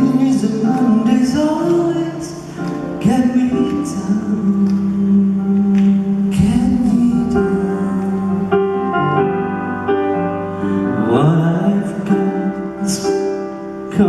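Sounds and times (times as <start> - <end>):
person singing: 0.0 - 9.6, 10.4 - 14.0
piano playing slow ballad chords: 0.0 - 14.0.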